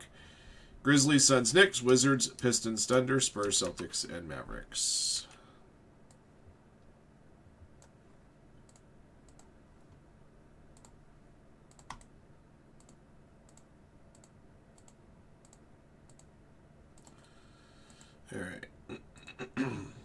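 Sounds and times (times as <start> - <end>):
computer mouse clicks: 8.6 - 10.0, 10.7 - 11.0, 11.7 - 12.1, 12.8 - 16.3, 17.0 - 17.2.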